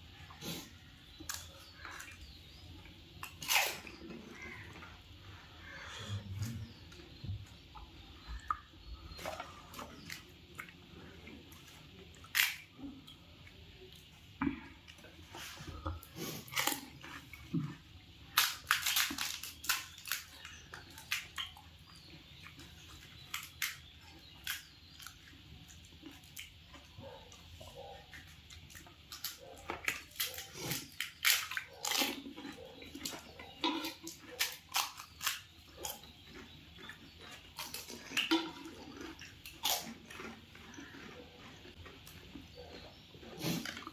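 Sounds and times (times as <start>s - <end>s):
chewing crisp shells: 0.3s - 43.9s.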